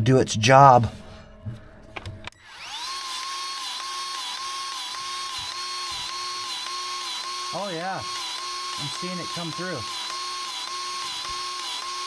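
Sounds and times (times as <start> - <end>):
grease gun motor whining: 1.9 - 12.0.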